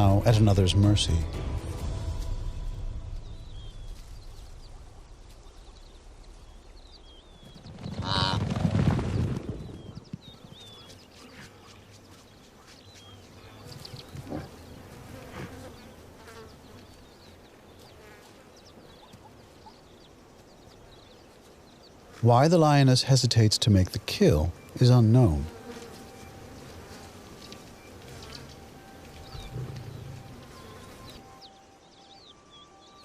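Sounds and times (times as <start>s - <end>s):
loud animal call with rumble: 8.0s - 8.6s
insects buzzing: 10.3s - 33.0s.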